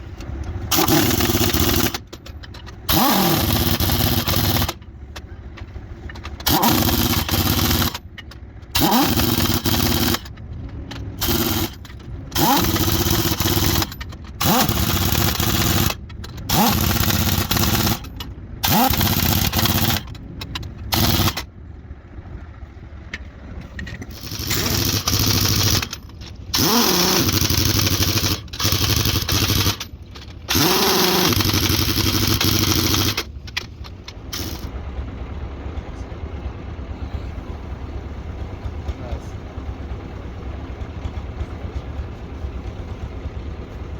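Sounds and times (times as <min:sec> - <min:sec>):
pneumatic impact wrench whining: 0:00.1 - 0:04.9, 0:06.1 - 0:21.5, 0:23.8 - 0:34.7.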